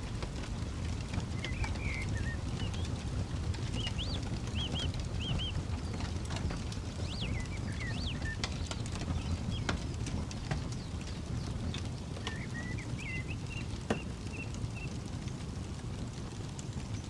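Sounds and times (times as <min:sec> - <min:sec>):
campfire crackling and popping: 0:00.0 - 0:17.0
low steady rumble: 0:00.0 - 0:17.0
small bird chirping: 0:01.3 - 0:03.0, 0:03.6 - 0:06.2, 0:06.8 - 0:15.0.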